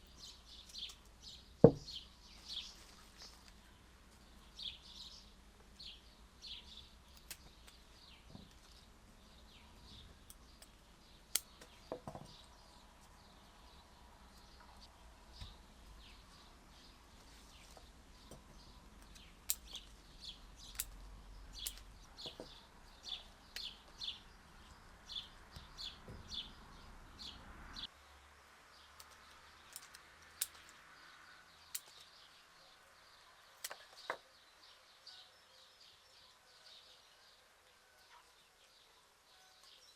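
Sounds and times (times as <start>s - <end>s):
small birds chirping: 0.0s - 39.9s
sharp clicks: 7.1s - 7.8s, 19.0s - 20.0s, 20.6s - 21.9s, 29.0s - 30.8s, 31.6s - 32.1s.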